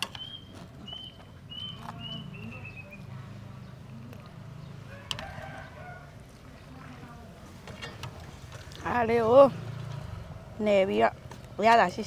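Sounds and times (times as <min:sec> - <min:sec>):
bird calling: 0:00.0 - 0:03.1.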